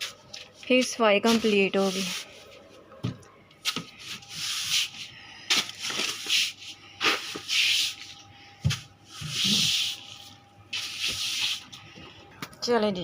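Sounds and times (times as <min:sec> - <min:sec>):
swishing cleaning strokes on floor: 0:00.8 - 0:02.5, 0:05.9 - 0:11.7.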